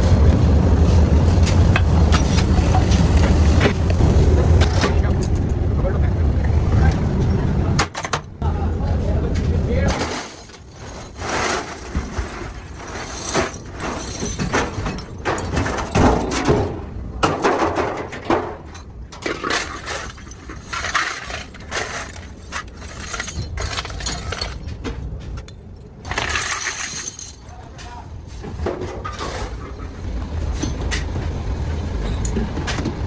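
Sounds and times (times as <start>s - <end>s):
metal parts clattering: 1.2s - 4.0s, 9.9s - 16.6s, 17.3s - 24.8s, 26.0s - 28.0s.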